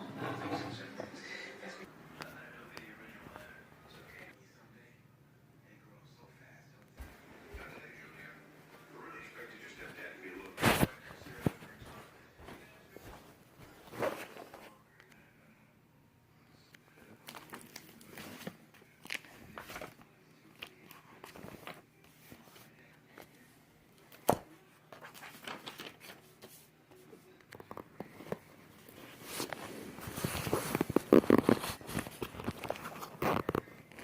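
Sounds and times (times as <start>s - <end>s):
crinkly rustling: 9.8s - 14.8s, 17.0s - 23.4s, 25.0s - 34.0s
handling rustles: 10.5s - 14.8s, 17.3s - 20.0s, 25.0s - 34.0s.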